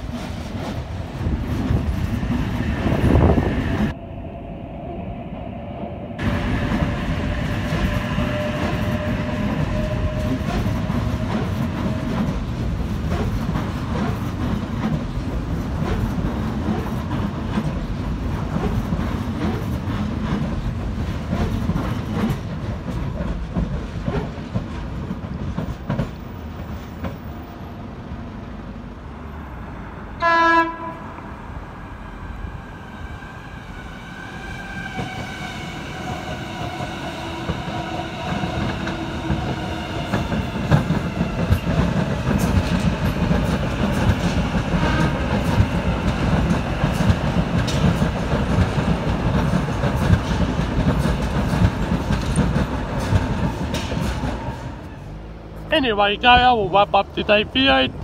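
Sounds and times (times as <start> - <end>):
train horn blast: 6.2 - 12.5, 30.2 - 31.3
train wheels clicking over rail joints: 6.2 - 27.6, 38.3 - 55.0.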